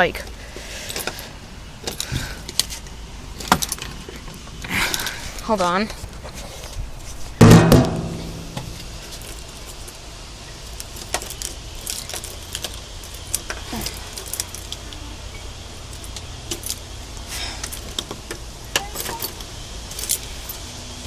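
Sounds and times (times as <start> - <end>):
steady low rumble: 0.0 - 18.7
keys jangling: 10.9 - 14.8, 18.8 - 20.7.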